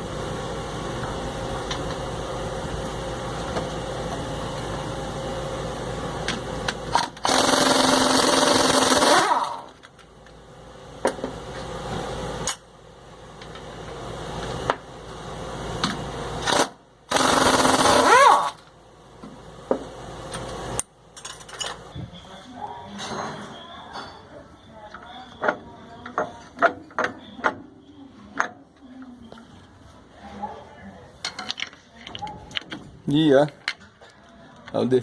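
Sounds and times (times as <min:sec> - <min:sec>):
steady machine hum: 0:00.0 - 0:23.0
pneumatic impact wrench hammering: 0:06.6 - 0:09.7, 0:15.8 - 0:18.7.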